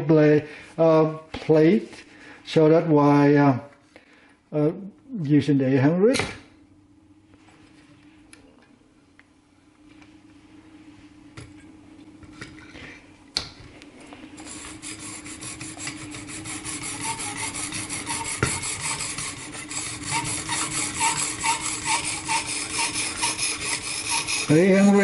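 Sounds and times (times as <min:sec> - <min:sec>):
knife scraping on sharpening plate: 0:14.6 - 0:24.6.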